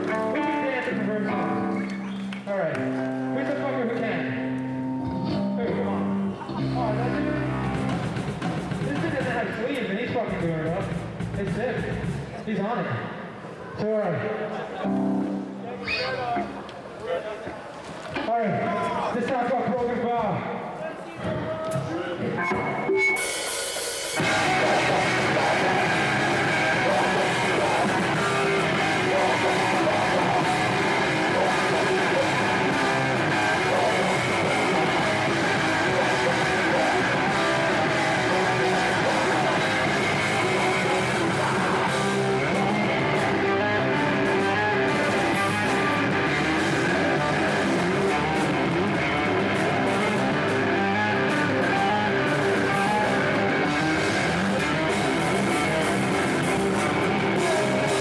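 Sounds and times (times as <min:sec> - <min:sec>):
distorted electric guitars: 0:00.0 - 0:12.3, 0:14.8 - 0:16.7, 0:22.2 - 0:58.0
hardcore band playing live: 0:00.0 - 0:12.4, 0:22.2 - 0:58.0
drum kit: 0:06.6 - 0:12.4, 0:22.4 - 0:58.0.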